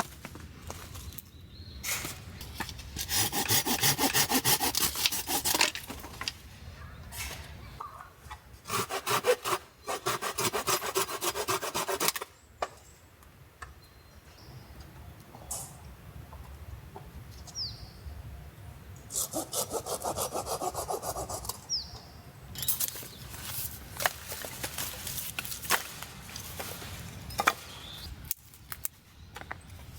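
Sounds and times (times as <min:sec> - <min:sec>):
hand saw cutting firewood: 0:02.6 - 0:05.9, 0:08.6 - 0:12.3, 0:19.1 - 0:21.6.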